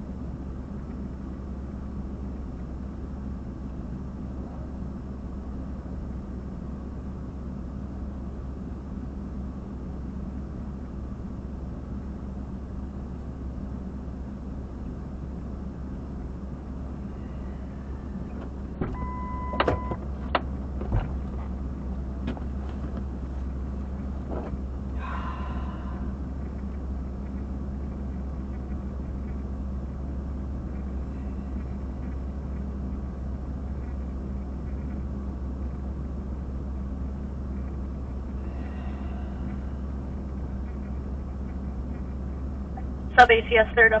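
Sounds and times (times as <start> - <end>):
low electrical hum: 0.0 - 44.0
short beep: 19.0 - 20.0
burst of radio static: 43.2 - 44.0.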